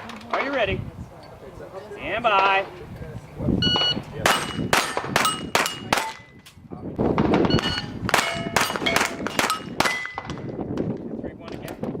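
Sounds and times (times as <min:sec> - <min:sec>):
steel plate clanging: 0:04.3 - 0:06.2, 0:07.6 - 0:10.3.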